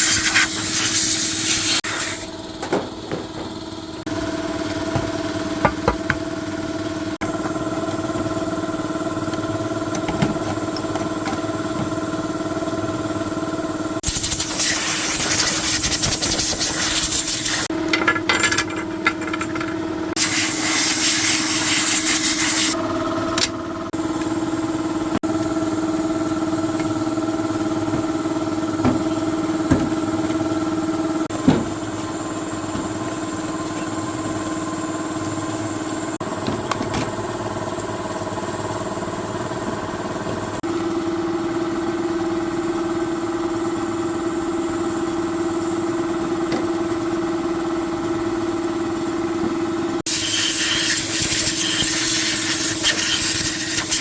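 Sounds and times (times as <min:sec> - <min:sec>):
loud hissing: 0:00.0 - 0:02.3, 0:50.1 - 0:54.0.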